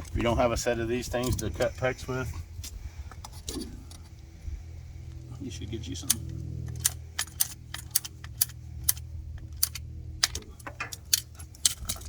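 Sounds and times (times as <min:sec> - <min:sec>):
low hum: 0:00.0 - 0:12.0
metal tools clinking: 0:05.9 - 0:12.0.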